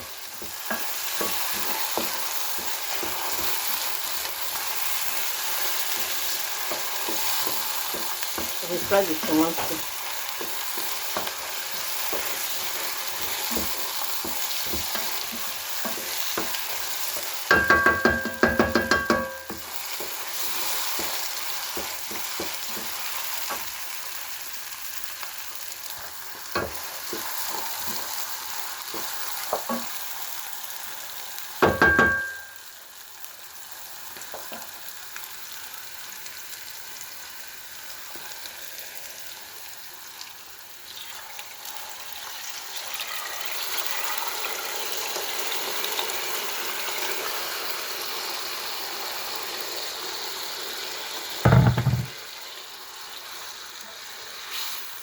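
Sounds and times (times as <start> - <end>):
food sizzling in a pot: 0.0 - 55.0
spoon stirring and scraping: 0.4 - 23.7
ringing metal clanks: 31.8 - 32.6.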